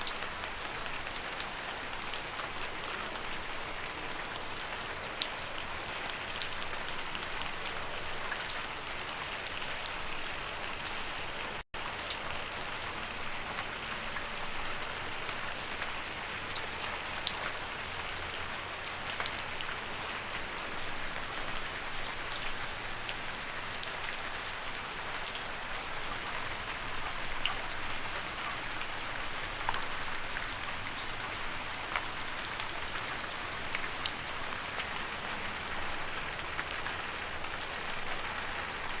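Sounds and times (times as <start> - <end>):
raindrops ticking on surface: 0.0 - 39.0
steady rain hiss: 11.8 - 39.0.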